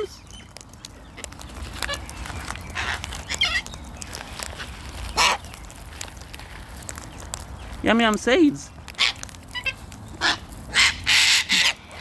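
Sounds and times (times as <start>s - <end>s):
cockatoo warbling call: 9.0s - 12.0s.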